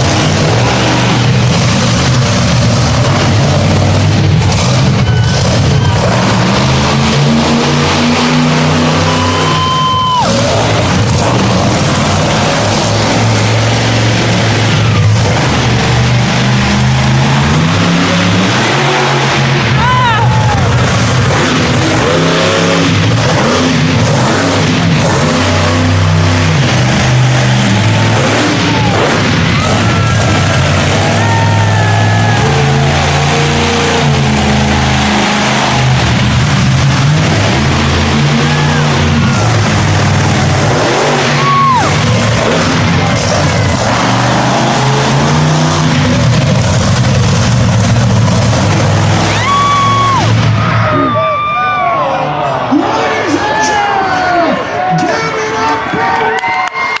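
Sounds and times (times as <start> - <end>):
monster truck engine revving: 0.0 - 57.0.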